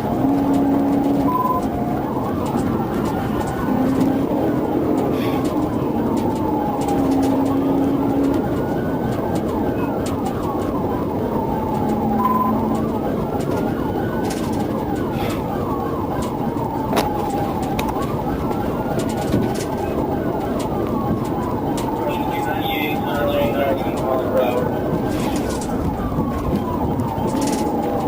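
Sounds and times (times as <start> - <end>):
engine and road noise: 0.0 - 28.0
police siren wailing: 0.0 - 28.0
police siren yelping: 0.0 - 28.0.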